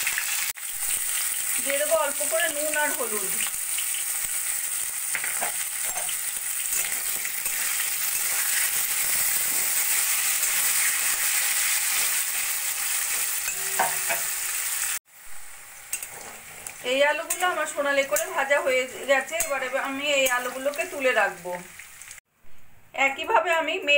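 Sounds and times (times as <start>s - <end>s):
potato cubes sizzling in oil: 0.0s - 22.2s
metal spatula scraping pan: 5.3s - 14.4s, 15.9s - 20.7s.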